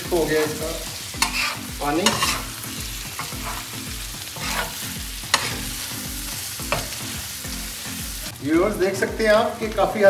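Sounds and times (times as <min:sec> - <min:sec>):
chicken sizzling on a griddle: 0:00.0 - 0:10.0
metal spatula scraping: 0:00.2 - 0:07.2.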